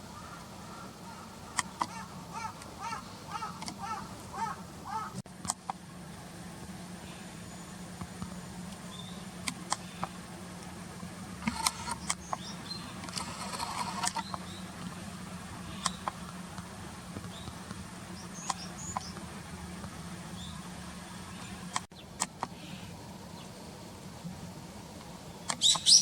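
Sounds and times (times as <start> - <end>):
small birds chirping: 0.0 - 5.2, 7.0 - 10.3, 11.5 - 15.0, 15.6 - 16.3, 17.2 - 19.3, 20.3 - 23.6, 25.2 - 26.0
rustle: 0.0 - 26.0.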